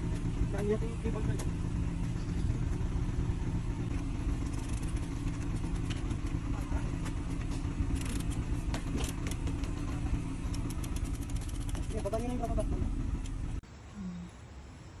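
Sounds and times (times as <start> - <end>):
vehicle engine idling: 0.0 - 13.6.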